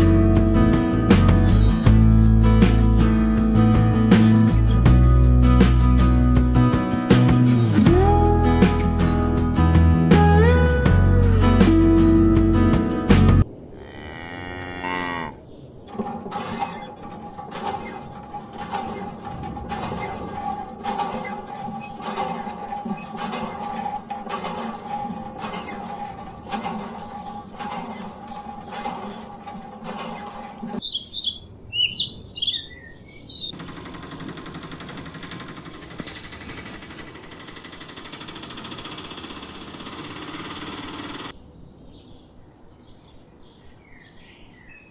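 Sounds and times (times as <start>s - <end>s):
cow mooing: 13.7s - 15.5s
steady whine with ticks: 15.8s - 30.8s, 33.5s - 41.3s
bird chirping: 19.0s - 33.6s, 41.4s - 44.9s.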